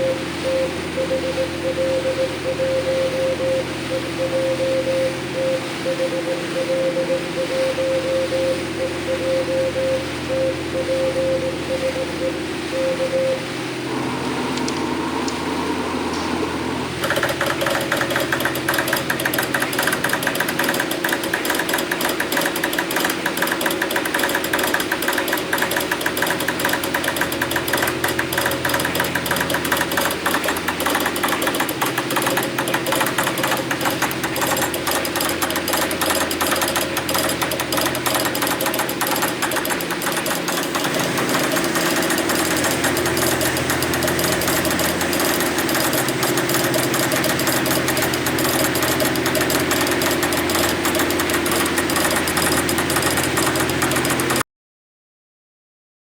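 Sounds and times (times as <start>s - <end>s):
engine running with fast rattle: 16.9s - 54.4s.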